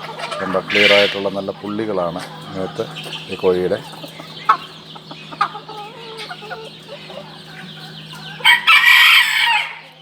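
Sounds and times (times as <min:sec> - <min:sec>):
chickens clucking: 0:00.0 - 0:10.0
rooster crowing: 0:08.4 - 0:10.0.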